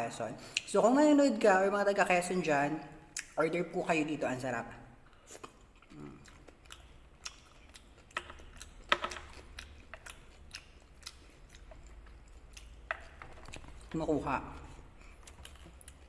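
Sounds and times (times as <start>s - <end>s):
person chewing with wet mouth noises: 5.0s - 16.0s.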